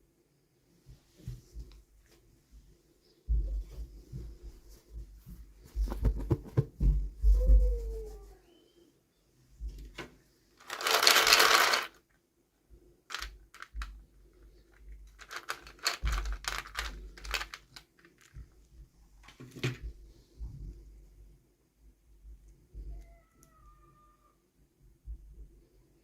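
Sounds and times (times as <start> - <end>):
plastic packaging crinkling: 10.6 - 12.0, 13.1 - 13.9, 15.0 - 18.4.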